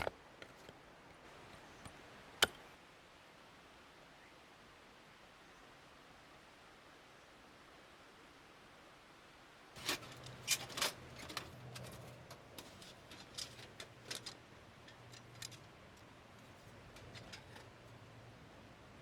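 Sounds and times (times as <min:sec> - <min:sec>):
sharp clicks and ticks: 0:10.0 - 0:17.7.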